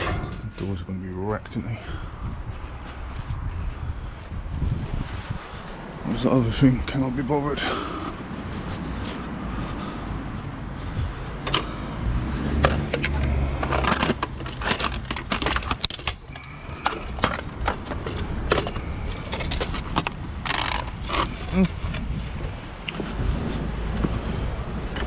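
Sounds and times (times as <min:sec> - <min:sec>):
scrap metal clattering: 0:00.0 - 0:01.0, 0:12.6 - 0:22.4.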